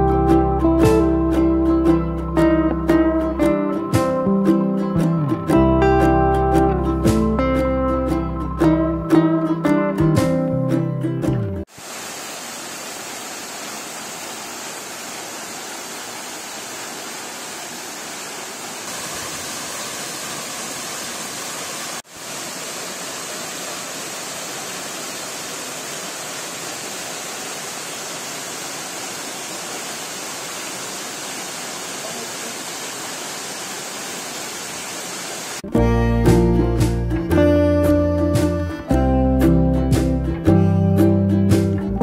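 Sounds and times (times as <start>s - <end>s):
waterfall rushing: 11.6s - 35.6s.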